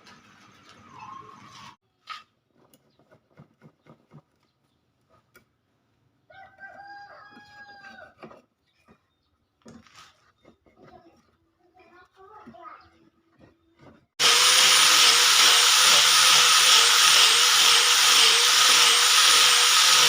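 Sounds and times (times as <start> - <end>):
rooster crowing: 6.3 - 8.2.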